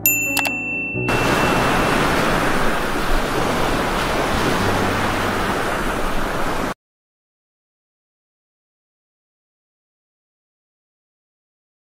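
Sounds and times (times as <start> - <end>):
heavy rain pouring: 1.1 - 6.8.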